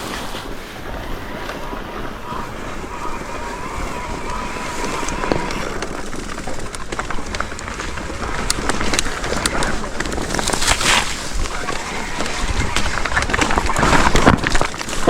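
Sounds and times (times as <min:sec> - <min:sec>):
wind rush: 0:00.0 - 0:15.0
bike clicks and rattles on rocks: 0:04.1 - 0:15.0.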